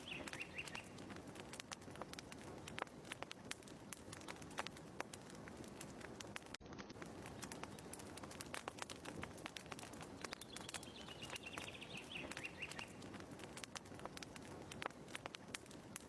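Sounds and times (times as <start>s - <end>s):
bird twittering trill: 0.0s - 1.0s, 10.3s - 13.0s
wood fire crackling: 0.0s - 16.0s.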